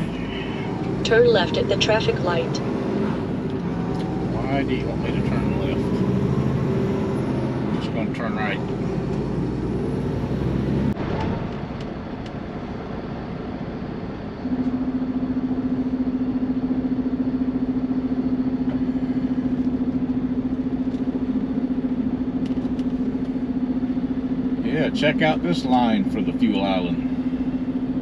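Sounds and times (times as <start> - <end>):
diesel truck engine: 0.0 - 28.0
low pulsing drone: 0.0 - 28.0
road noise: 0.0 - 28.0.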